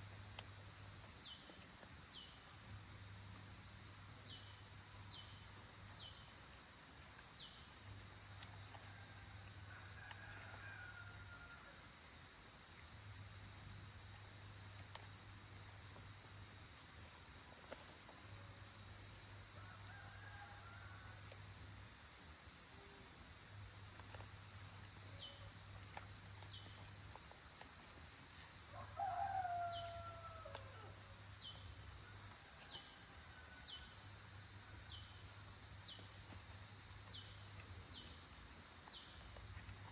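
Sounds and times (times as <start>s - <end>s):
insects trilling: 0.0s - 39.9s
rooster crowing: 9.0s - 11.8s, 19.6s - 21.2s, 28.7s - 31.0s.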